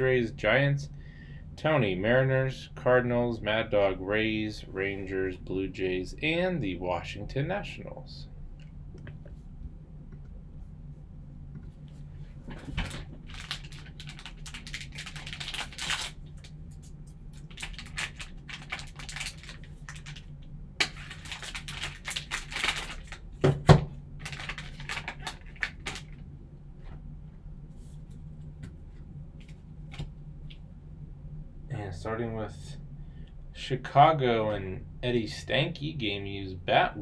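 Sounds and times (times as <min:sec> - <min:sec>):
packaging tearing and crinkling: 0:12.8 - 0:16.8, 0:17.4 - 0:23.3, 0:24.2 - 0:26.2.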